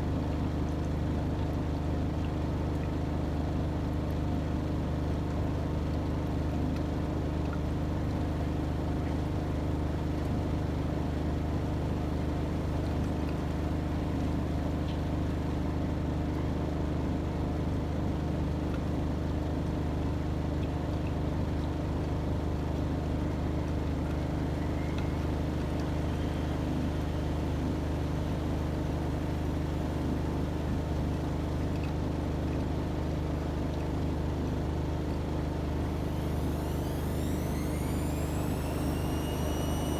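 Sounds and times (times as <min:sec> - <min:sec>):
washing machine motor hum: 0:23.7 - 0:32.4, 0:34.2 - 0:39.9.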